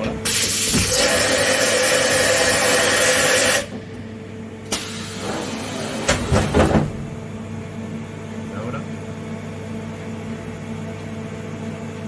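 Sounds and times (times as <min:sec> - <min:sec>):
machine loud hiss: 0:00.2 - 0:03.7, 0:04.7 - 0:06.7.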